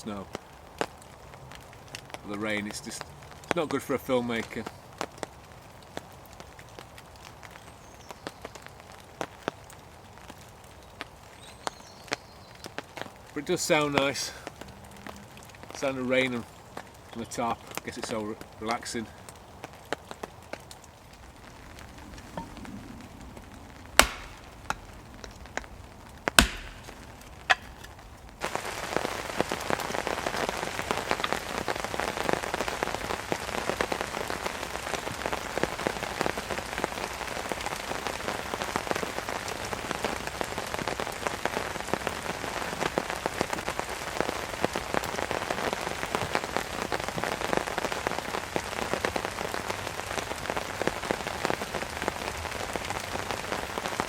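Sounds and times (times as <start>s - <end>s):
heavy rain on a tarp: 0.0s - 54.0s
sharp single taps: 24.0s - 24.8s, 26.3s - 27.9s.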